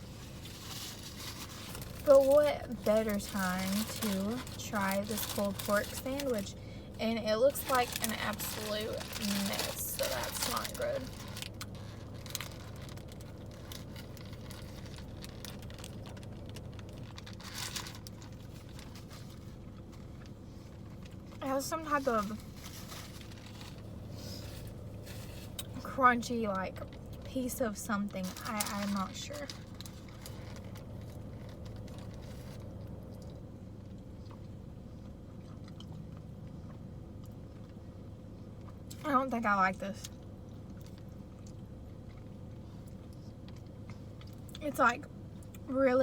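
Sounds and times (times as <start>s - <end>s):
steady low hum: 0.0s - 46.0s
food packaging crinkling: 0.1s - 6.5s, 7.4s - 25.8s, 28.1s - 33.3s
person chewing food: 30.0s - 37.8s.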